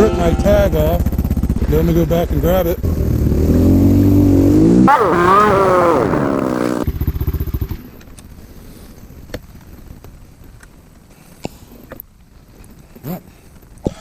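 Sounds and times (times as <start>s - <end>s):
motorcycle engine revving: 2.8s - 7.0s.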